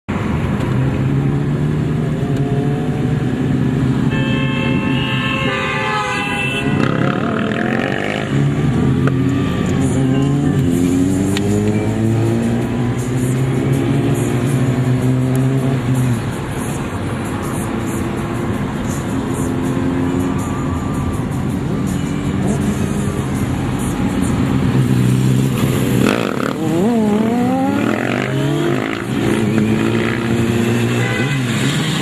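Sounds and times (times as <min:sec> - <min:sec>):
vehicle horn: 0:04.0 - 0:08.2, 0:09.1 - 0:10.4, 0:30.0 - 0:32.0
motorcycle engines running: 0:06.7 - 0:32.0.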